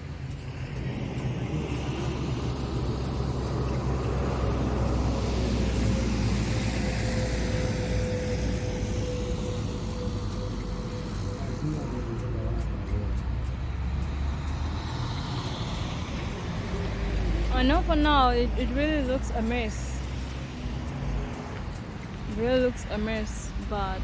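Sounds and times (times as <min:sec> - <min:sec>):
steady whine: 0:00.0 - 0:13.8
vehicle passing on road: 0:00.0 - 0:24.0.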